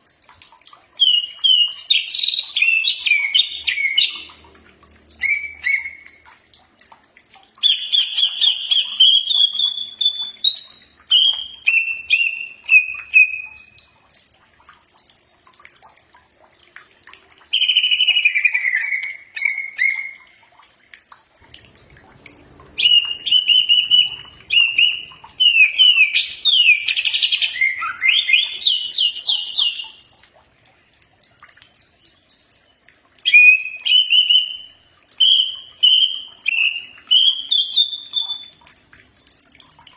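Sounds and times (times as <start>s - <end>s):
bird singing whistled notes: 7.6s - 13.7s, 22.8s - 29.9s, 33.3s - 38.5s.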